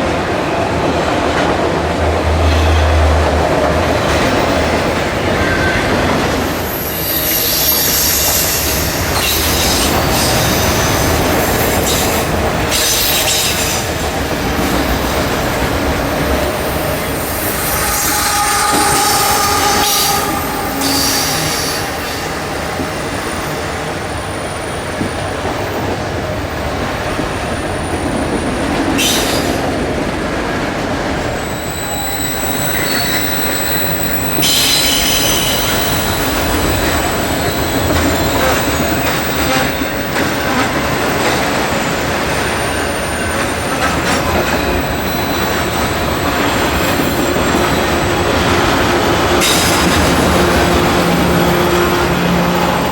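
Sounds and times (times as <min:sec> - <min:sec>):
train wheels rumbling on rails: 0:00.0 - 0:52.9
high wheel squeals: 0:05.2 - 0:13.9, 0:16.6 - 0:25.4, 0:31.3 - 0:48.7.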